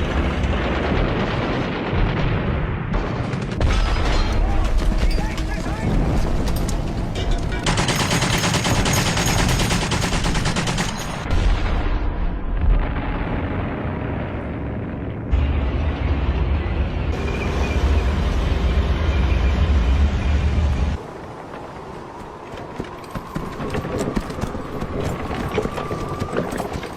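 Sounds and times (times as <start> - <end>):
heavy deep rumble: 11.3 - 21.0.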